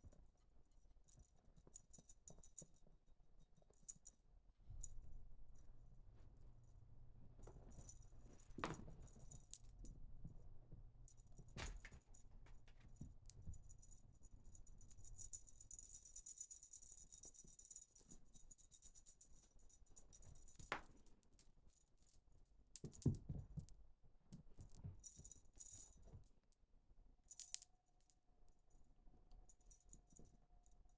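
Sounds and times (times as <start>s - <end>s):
toy rattling and jingling: 12.9s - 20.7s.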